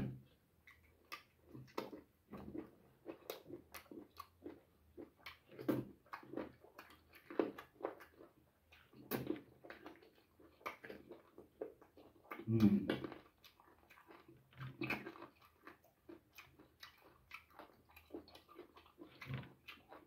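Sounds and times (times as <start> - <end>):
chewing and lip-smacking: 0.1 - 20.0.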